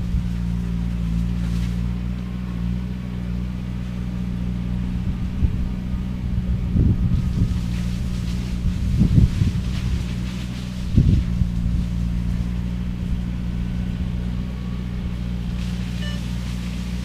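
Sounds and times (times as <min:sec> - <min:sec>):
diesel engine running: 0:00.0 - 0:17.0
shredder head grinding cane: 0:06.8 - 0:17.0.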